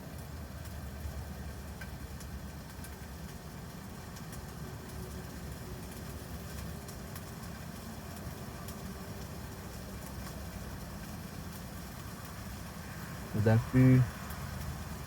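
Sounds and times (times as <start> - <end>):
faint ticks: 1.7 - 12.5.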